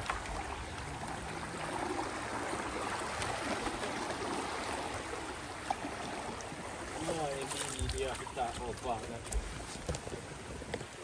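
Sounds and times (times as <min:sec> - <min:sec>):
flowing river water: 0:00.0 - 0:11.0.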